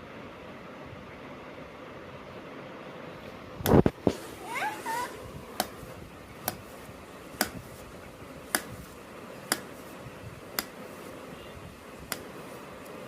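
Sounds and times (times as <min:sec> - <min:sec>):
faint background hiss: 0:00.0 - 0:13.0
sharp taps: 0:05.6 - 0:06.8, 0:07.4 - 0:07.9, 0:08.5 - 0:09.9, 0:10.5 - 0:10.8, 0:12.1 - 0:12.4.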